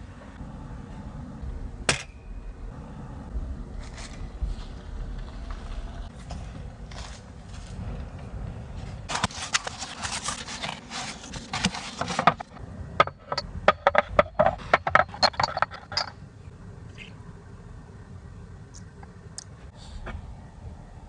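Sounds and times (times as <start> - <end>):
low rumble: 0.0 - 9.2
objects rustling and scraping: 3.7 - 16.3.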